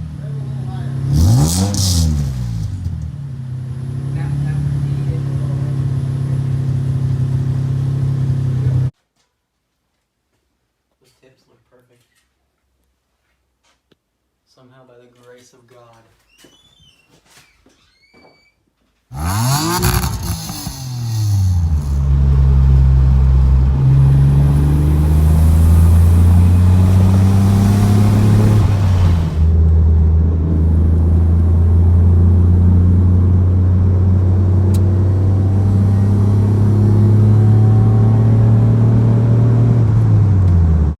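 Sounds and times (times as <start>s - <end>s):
car engine revving: 0.4s - 8.9s, 19.1s - 41.0s.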